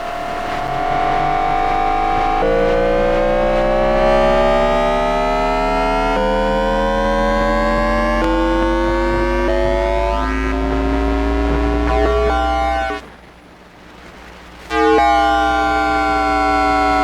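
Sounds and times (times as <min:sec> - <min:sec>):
rising electric motor tones: 0:00.0 - 0:13.2, 0:14.7 - 0:17.0
steady low hum: 0:00.0 - 0:17.0.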